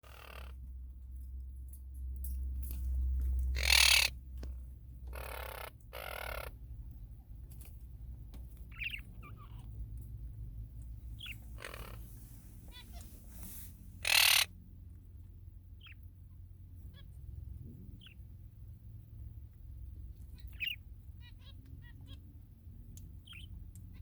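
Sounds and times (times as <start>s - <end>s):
budgerigar chirping: 0.0s - 0.6s, 3.5s - 4.2s, 5.1s - 6.6s, 8.7s - 9.7s, 11.1s - 12.1s, 14.0s - 14.6s, 15.8s - 16.0s, 18.0s - 18.2s, 20.4s - 22.2s, 23.2s - 24.0s.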